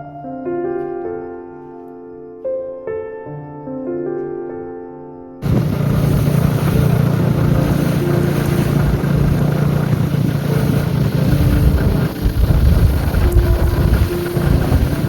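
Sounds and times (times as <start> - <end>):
moving vehicle rumble: 5.4 - 15.0.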